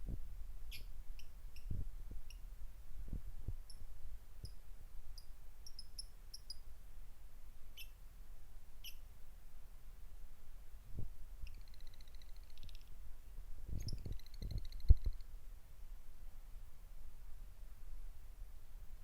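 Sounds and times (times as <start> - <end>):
starling chirping: 0.7 - 1.7, 5.2 - 6.6, 7.8 - 8.0, 8.8 - 9.0, 11.4 - 12.9, 13.8 - 15.2.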